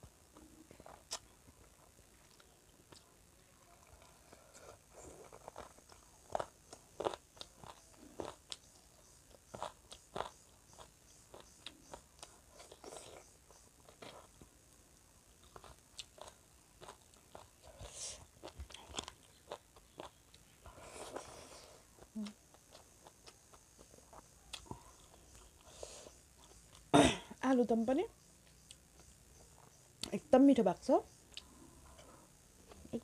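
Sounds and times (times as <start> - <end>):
mouth chewing with wet clicks: 0.3 - 1.4, 3.9 - 14.4, 15.4 - 20.5.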